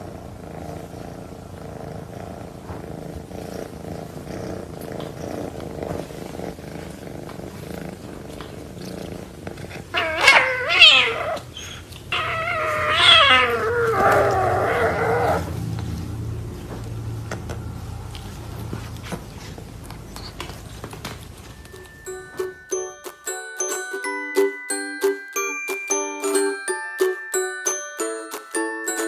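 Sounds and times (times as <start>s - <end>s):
cat purring: 0.0s - 22.7s
cat meowing: 8.4s - 15.6s.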